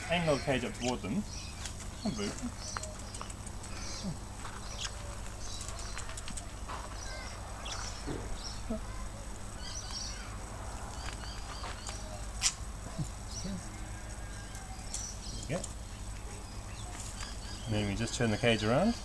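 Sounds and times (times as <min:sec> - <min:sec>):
steady low hum: 0:00.0 - 0:19.0
sharp clicks: 0:02.4 - 0:03.9, 0:04.7 - 0:06.6
budgerigars chirping: 0:14.3 - 0:19.0.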